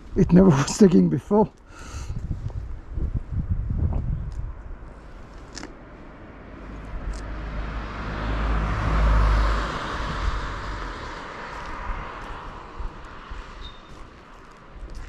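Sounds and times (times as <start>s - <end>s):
vehicle passing by: 6.0s - 14.6s.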